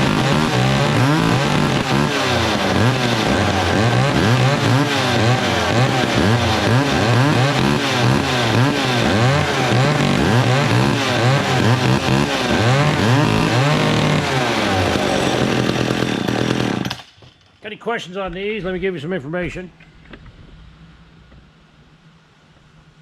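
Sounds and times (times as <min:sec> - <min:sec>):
chainsaw revving: 0:00.0 - 0:17.2.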